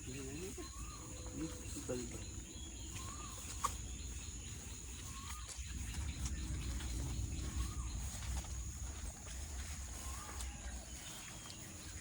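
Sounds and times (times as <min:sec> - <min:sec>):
bird calling: 0:00.0 - 0:12.0
high insect drone: 0:00.0 - 0:12.0
low rumble: 0:04.2 - 0:12.0.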